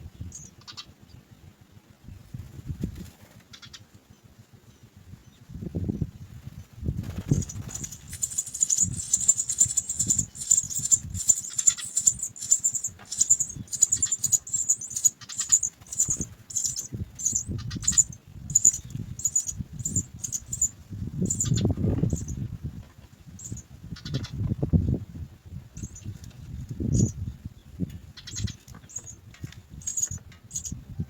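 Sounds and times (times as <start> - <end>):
nestlings chirping high-pitched: 0.2 - 1.0, 7.0 - 22.4, 23.4 - 24.4, 25.8 - 26.2, 26.8 - 27.2, 28.2 - 30.8.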